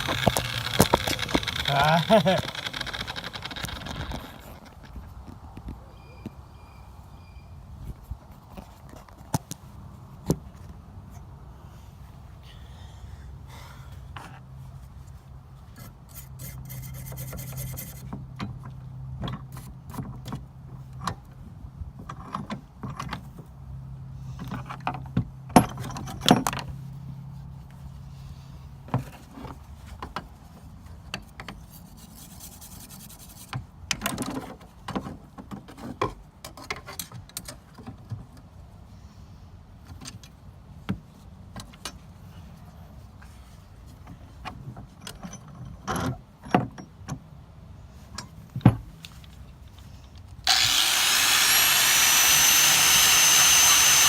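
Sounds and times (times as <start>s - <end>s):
tools clicking and scraping: 0.0s - 4.9s.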